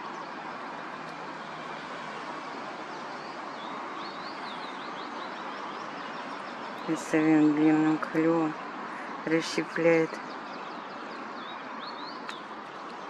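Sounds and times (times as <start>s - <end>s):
small birds chirping: 2.0s - 13.0s.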